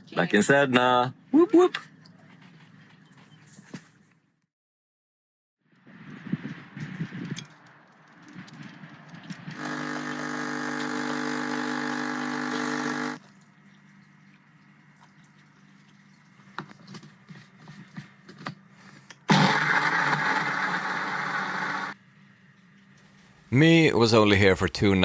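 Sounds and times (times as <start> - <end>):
small motor running: 9.5 - 13.2, 19.3 - 22.0.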